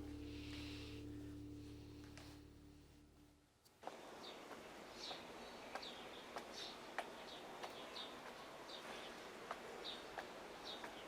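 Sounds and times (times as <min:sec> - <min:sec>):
soft background hiss: 0:00.0 - 0:05.8.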